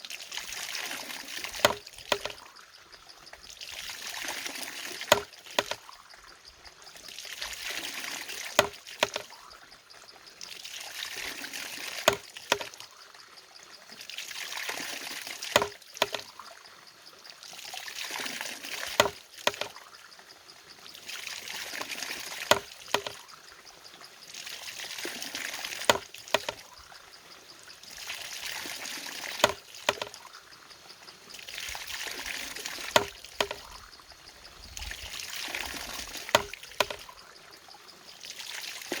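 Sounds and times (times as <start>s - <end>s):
pouring water: 0.0s - 6.1s, 6.8s - 9.6s, 10.4s - 13.1s, 13.9s - 16.6s, 17.3s - 20.0s, 20.9s - 23.4s, 24.3s - 26.8s, 27.8s - 30.4s, 31.2s - 33.9s, 34.8s - 37.4s, 38.1s - 39.0s.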